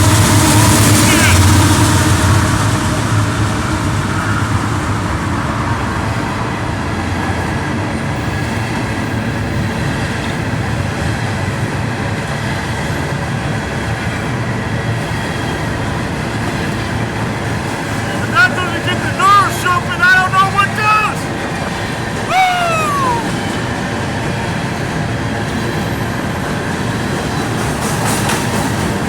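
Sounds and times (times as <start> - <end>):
train wheels rumbling on rails: 24.5 - 29.0.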